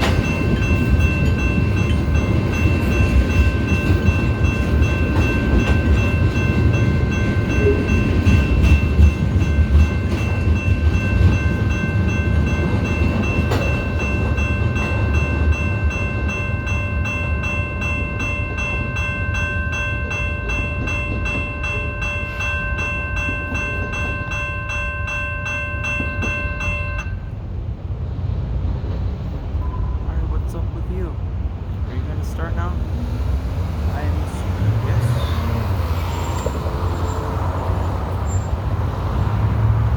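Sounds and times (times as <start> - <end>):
high ringing tones: 0.0 - 27.4
freight train rumbling by: 0.0 - 39.9.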